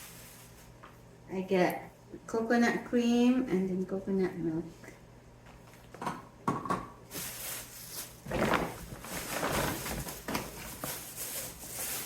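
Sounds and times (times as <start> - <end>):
rustling: 7.1 - 12.0.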